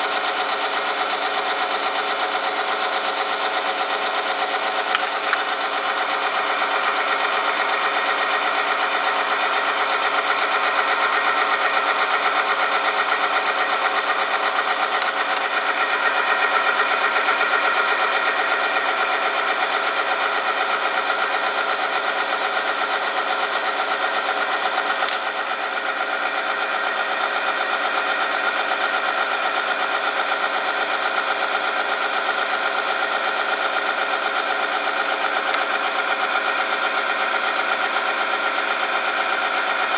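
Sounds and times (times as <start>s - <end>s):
machine whirring and grinding: 0.0s - 39.9s.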